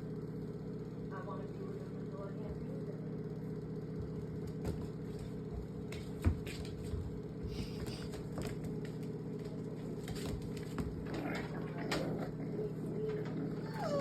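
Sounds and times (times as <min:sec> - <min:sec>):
motor humming: 0:07.0 - 0:14.0.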